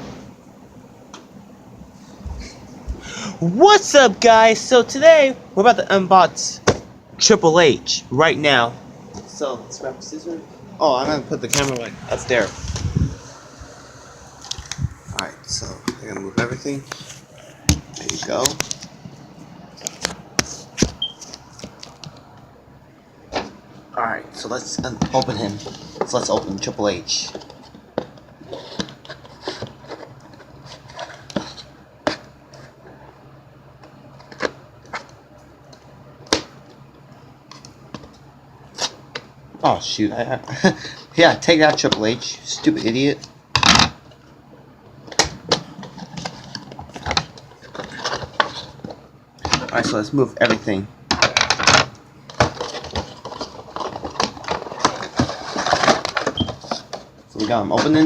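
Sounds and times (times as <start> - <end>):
faint steady hum: 0.0 - 58.0
packaging rustling and crinkling: 52.3 - 58.0.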